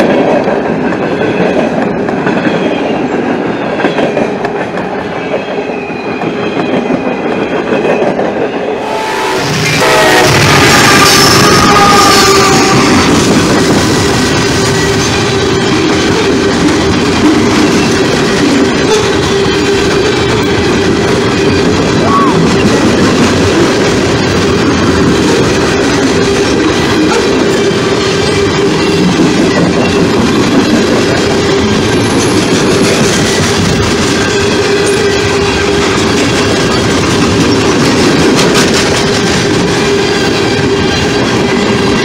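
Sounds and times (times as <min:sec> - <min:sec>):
train horn: 0:08.8 - 0:13.6
train wheels clattering over joints: 0:09.8 - 0:42.0.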